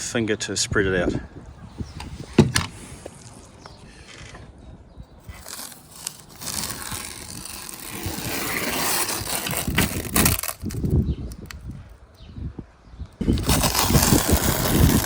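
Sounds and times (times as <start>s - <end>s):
caulking gun crunching and scraping: 5.2s - 11.6s, 13.2s - 15.0s.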